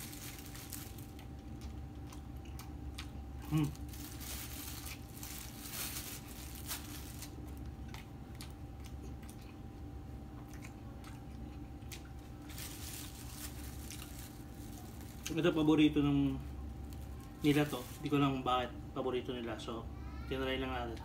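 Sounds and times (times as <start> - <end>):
plastic wrapper crinkling: 0.0 - 1.7, 3.5 - 7.7, 12.2 - 18.5
man chewing food: 0.0 - 15.4
faint steady hum: 0.0 - 21.0.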